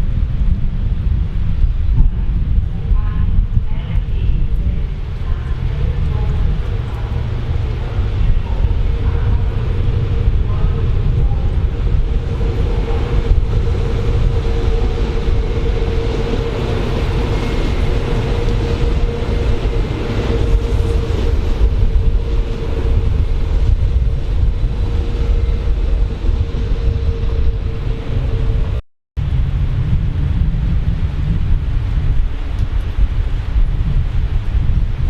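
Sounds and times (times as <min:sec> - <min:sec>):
train deep rumble: 0:00.0 - 0:35.0
train mid-pitched whine: 0:04.2 - 0:28.8.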